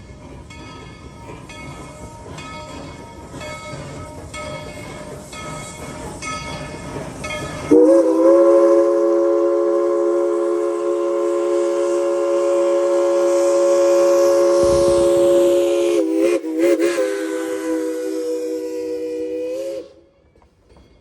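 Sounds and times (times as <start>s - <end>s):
locomotive bell ringing: 0.0s - 8.0s
steam locomotive chime whistle: 0.0s - 21.0s
train running rumble: 0.0s - 21.0s.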